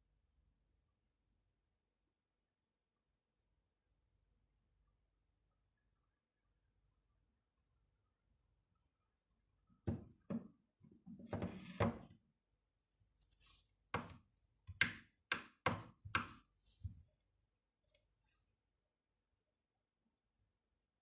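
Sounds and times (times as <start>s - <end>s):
sharp knocks and taps: 14.0s - 16.4s.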